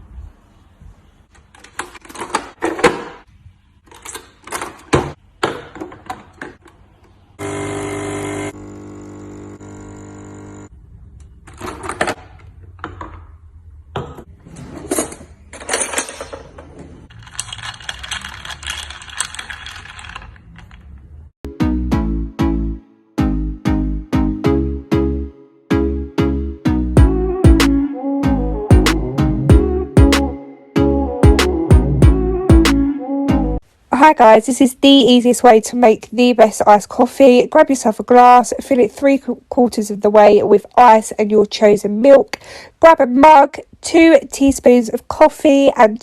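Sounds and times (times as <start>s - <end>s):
small electric appliance running: 7.4s - 10.7s.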